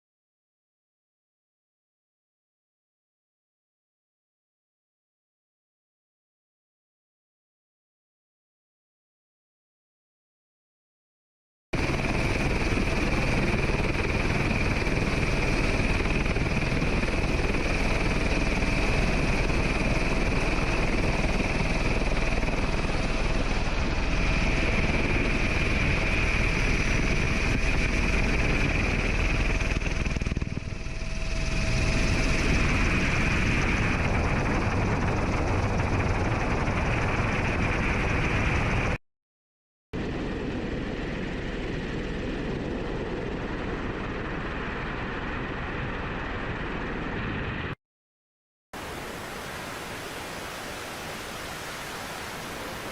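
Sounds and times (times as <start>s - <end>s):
helicopter engine and rotor: 11.8s - 39.0s, 40.0s - 47.8s.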